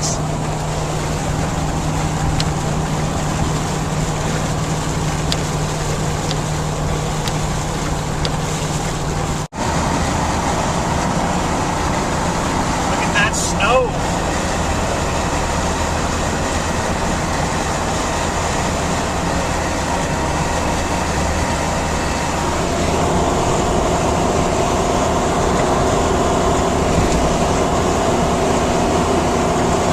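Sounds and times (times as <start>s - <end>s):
car interior road noise: 0.0s - 29.9s.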